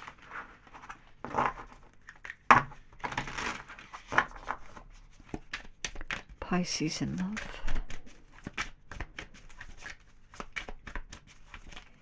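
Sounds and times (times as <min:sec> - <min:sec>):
cards being shuffled: 0:02.0 - 0:06.4, 0:07.0 - 0:12.0.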